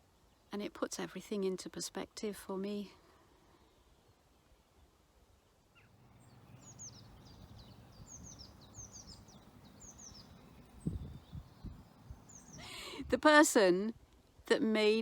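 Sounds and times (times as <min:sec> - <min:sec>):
faint low outdoor rumble: 0:02.8 - 0:14.5
songbird chirping: 0:03.6 - 0:13.5.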